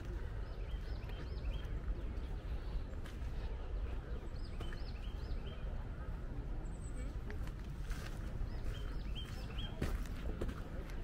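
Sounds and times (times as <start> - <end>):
bird singing chirps: 0.1 - 2.8, 4.1 - 5.8, 8.5 - 9.8.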